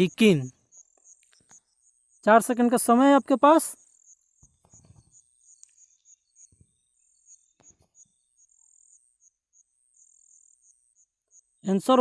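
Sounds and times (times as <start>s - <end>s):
faint cricket chirping: 0.0s - 12.0s.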